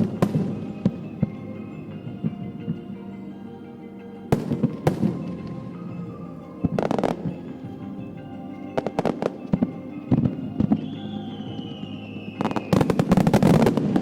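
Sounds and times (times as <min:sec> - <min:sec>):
music from loudspeakers: 0:00.0 - 0:14.0.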